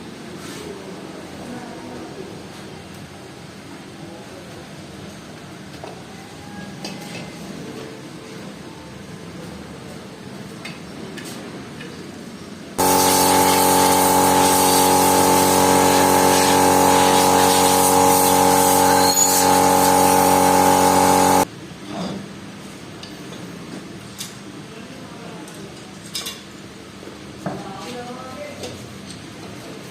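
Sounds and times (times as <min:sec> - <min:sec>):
electric motor humming: 0:12.8 - 0:21.5.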